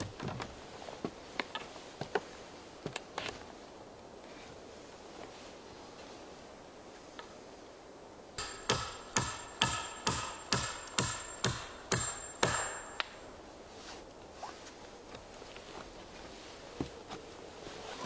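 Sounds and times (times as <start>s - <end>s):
hammer striking metal: 8.4s - 13.4s.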